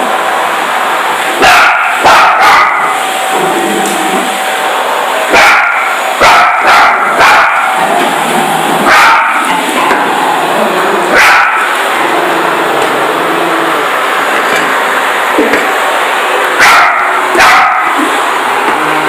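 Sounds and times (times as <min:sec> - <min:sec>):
vacuum cleaner motor humming: 0:00.0 - 0:19.0
dog barking: 0:01.4 - 0:03.0, 0:05.3 - 0:07.8, 0:08.8 - 0:09.6, 0:11.1 - 0:11.8, 0:16.6 - 0:18.1.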